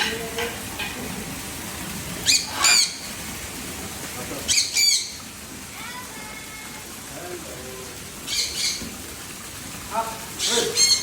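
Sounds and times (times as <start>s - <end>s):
bird calling high: 2.2s - 3.2s, 4.5s - 5.3s, 8.2s - 9.0s, 10.4s - 11.0s.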